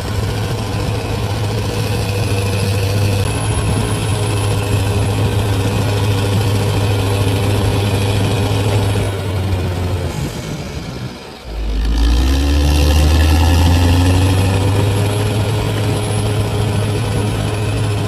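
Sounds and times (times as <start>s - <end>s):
bulldozer diesel engine droning: 0.0s - 18.0s.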